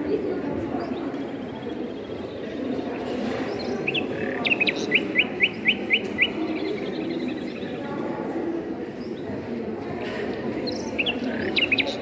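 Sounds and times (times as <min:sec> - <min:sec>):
low background murmur: 0:00.0 - 0:12.0
small songbird singing: 0:03.5 - 0:07.8, 0:10.6 - 0:12.0.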